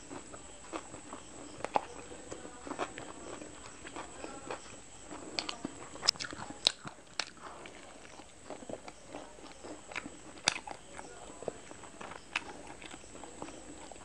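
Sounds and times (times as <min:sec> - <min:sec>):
person chewing food: 0:00.0 - 0:14.0
mouth clicks and smacks: 0:02.8 - 0:11.1.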